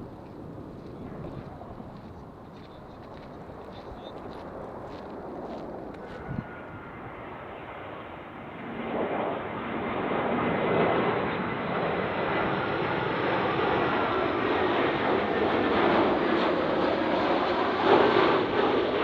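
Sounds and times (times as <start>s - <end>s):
jet airliner engine noise: 0.0s - 19.0s
faint high whine: 5.8s - 9.5s.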